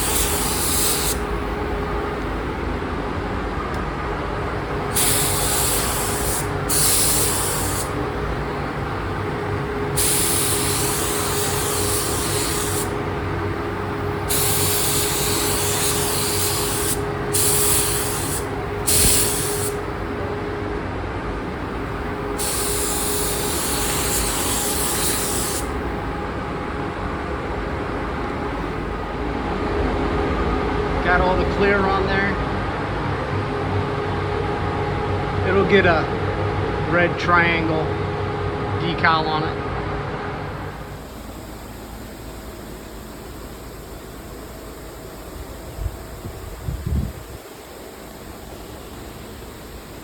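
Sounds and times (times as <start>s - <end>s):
spray gun hissing: 0.0s - 1.6s, 4.8s - 20.2s, 21.5s - 26.0s.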